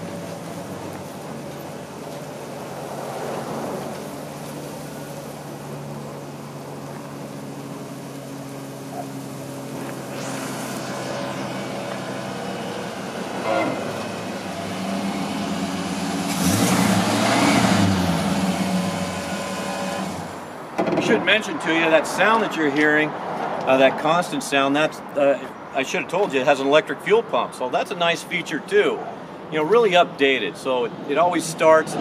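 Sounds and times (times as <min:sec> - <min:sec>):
vee eight engine rumbling: 0:00.0 - 0:23.6
constant electric pump whine: 0:04.0 - 0:16.5, 0:17.8 - 0:20.6.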